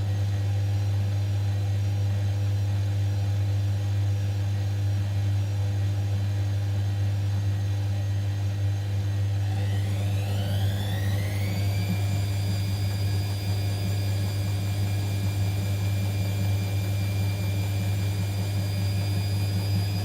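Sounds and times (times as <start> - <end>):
washing machine spinning: 8.8 - 20.0.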